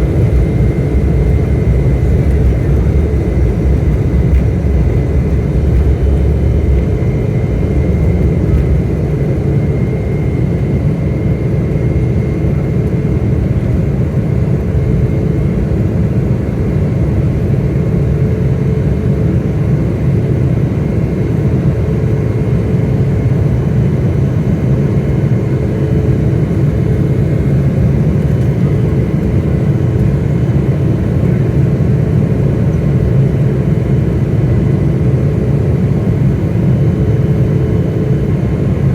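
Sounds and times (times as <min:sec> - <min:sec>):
faint steady whine: 0:00.0 - 0:18.3
airliner engines rumbling: 0:00.0 - 0:38.9.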